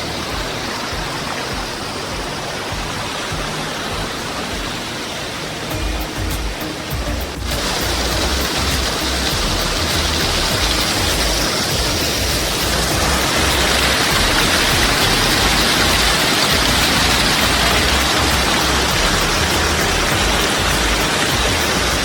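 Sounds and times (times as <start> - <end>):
waterfall roaring: 0.0 - 22.0
low rumble: 5.8 - 22.0.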